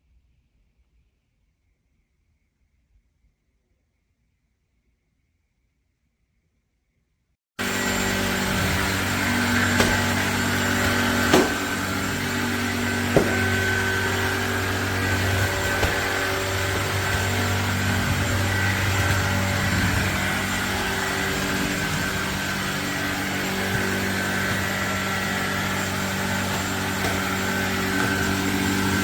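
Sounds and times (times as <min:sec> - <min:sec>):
stick vacuum motor whining: 0:07.6 - 0:29.0.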